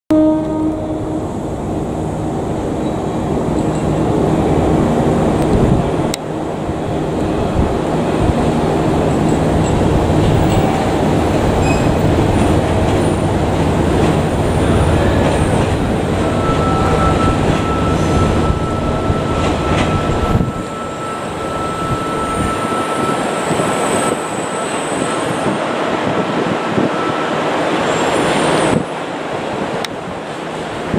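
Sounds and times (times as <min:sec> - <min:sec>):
train high whine: 0:00.1 - 0:30.9
wind rumble on microphone: 0:04.7 - 0:12.8.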